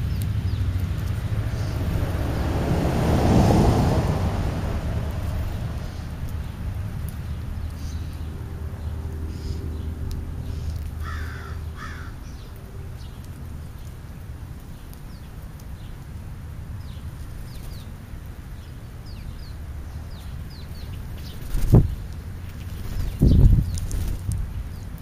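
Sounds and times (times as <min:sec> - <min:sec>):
harsh bird calls: 0:09.3 - 0:12.5.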